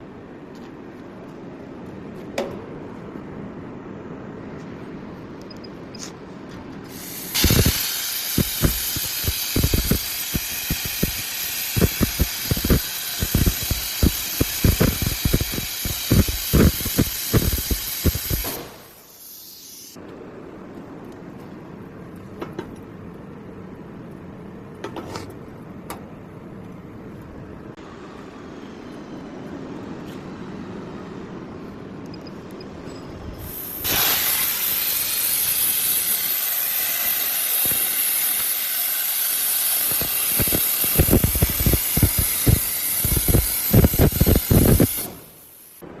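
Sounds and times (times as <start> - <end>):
plasma arc hissing: 6.9 - 20.0, 33.4 - 45.8.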